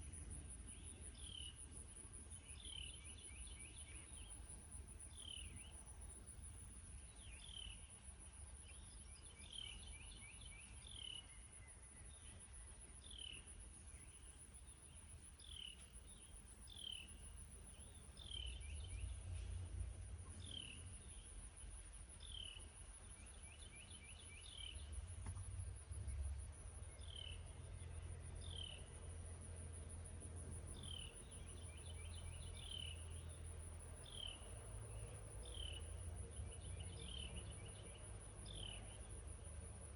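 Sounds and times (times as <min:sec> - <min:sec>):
high-pitched insect trill: 0:13.0 - 0:19.2, 0:30.5 - 0:39.9
faint low rumble: 0:13.7 - 0:39.9.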